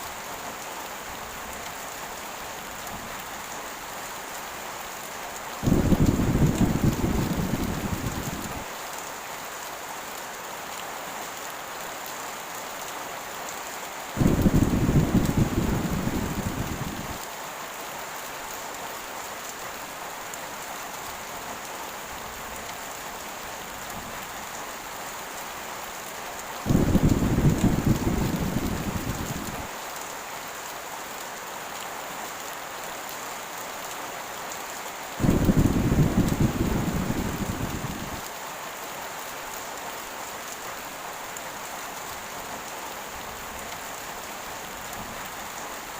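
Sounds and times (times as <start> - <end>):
heavy rain falling: 0.0 - 45.9
thunder rumbling: 5.6 - 8.6, 14.2 - 17.2, 26.7 - 29.7, 35.2 - 38.2.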